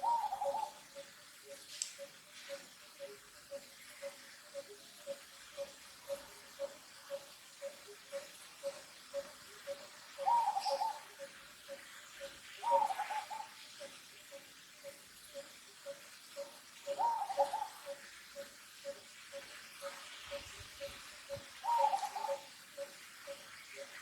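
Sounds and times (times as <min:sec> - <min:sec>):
wavering bird calls: 0:00.0 - 0:24.0.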